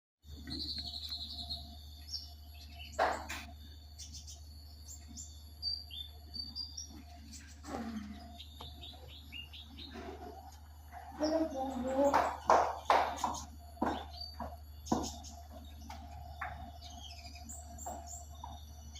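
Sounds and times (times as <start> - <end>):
steady low hum: 0.2 - 18.9
pet bird chirping: 0.3 - 18.9.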